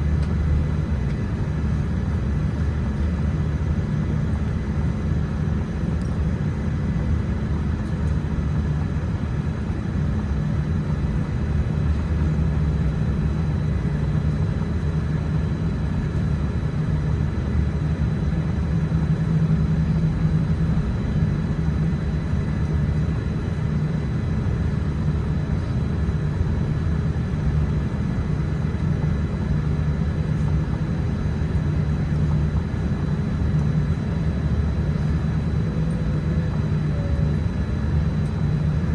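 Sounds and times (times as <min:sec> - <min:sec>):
aircraft cabin rumble: 0:00.0 - 0:38.9.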